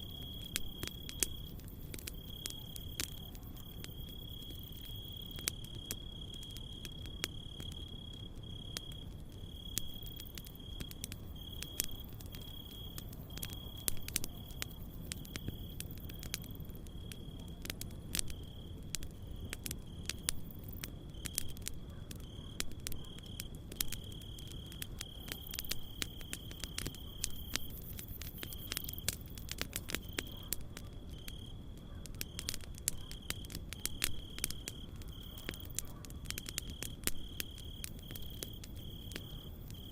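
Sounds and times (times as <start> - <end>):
campfire crackling and popping: 0.0 - 39.9
crickets trilling: 0.0 - 39.9.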